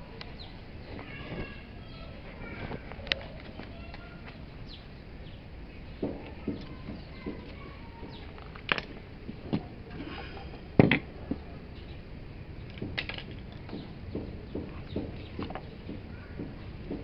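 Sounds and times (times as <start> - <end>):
hard objects knocking and clicking: 6.0 - 11.5, 12.6 - 17.0.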